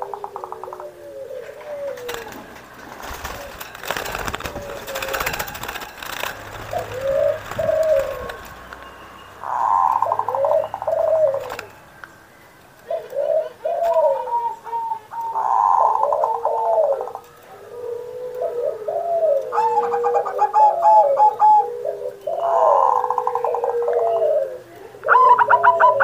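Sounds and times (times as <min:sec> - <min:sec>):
dove cooing: 0:00.0 - 0:11.9, 0:12.8 - 0:26.0
crackly noise: 0:00.0 - 0:18.7.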